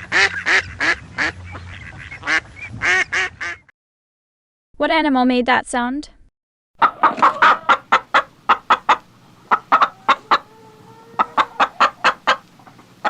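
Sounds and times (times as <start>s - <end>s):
chickens clucking: 6.8s - 13.0s.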